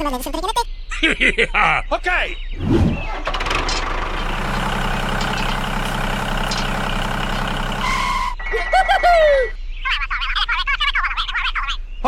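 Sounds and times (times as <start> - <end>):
high squeaky gliding sound: 2.6 - 8.4
engine idling: 2.9 - 8.4.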